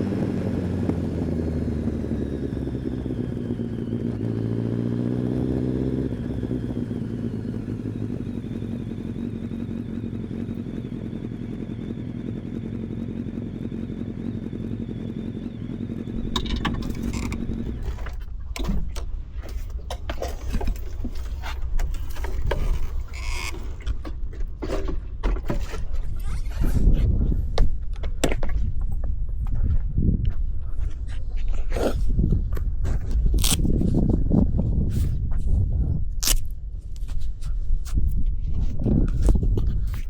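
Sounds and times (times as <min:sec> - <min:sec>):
motorcycle engine idling: 0:00.0 - 0:27.9
clicks knocks and scrapes: 0:16.2 - 0:26.8.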